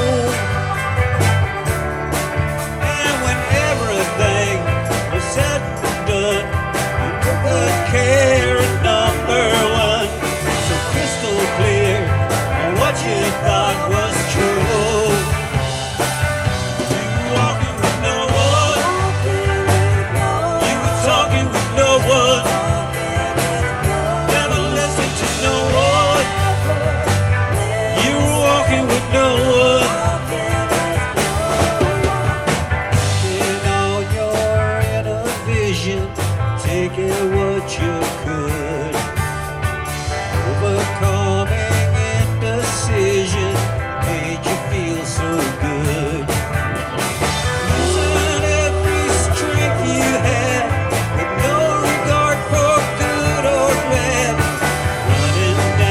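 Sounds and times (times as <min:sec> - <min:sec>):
person singing: 0:00.0 - 0:01.4, 0:02.8 - 0:39.2, 0:40.2 - 0:46.5, 0:47.6 - 0:55.9
live rock band playing: 0:00.0 - 0:55.9.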